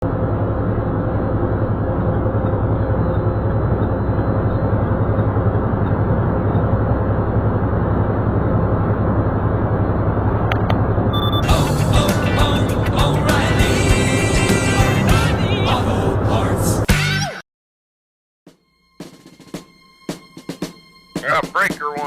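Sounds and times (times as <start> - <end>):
heavy truck engine hum: 0.0 - 16.9
road noise: 0.0 - 16.9.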